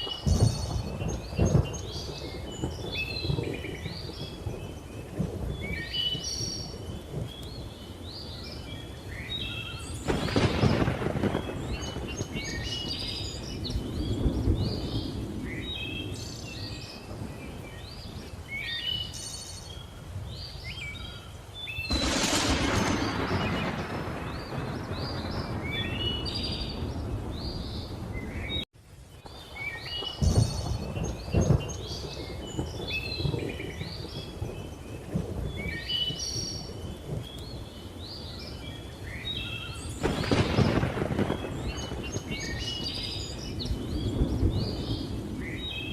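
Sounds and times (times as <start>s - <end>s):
rolling thunder: 0.0s - 8.6s, 9.4s - 18.3s, 21.8s - 28.6s, 29.3s - 45.9s
small birds chirping and whistling: 0.0s - 45.9s.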